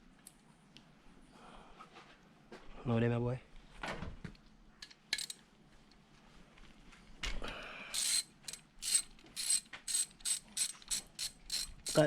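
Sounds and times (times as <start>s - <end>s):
ratchet wrench clicking: 7.9s - 12.0s.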